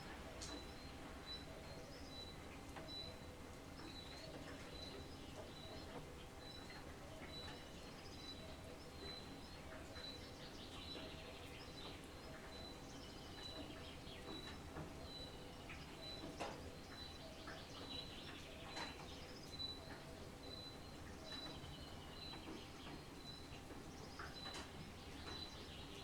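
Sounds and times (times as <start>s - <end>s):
faint background hiss: 0.0s - 26.0s.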